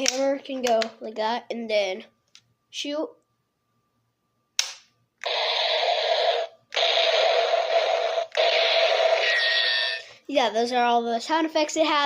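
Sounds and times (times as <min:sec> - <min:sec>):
electronic gunshot sound effects: 0:05.3 - 0:09.4.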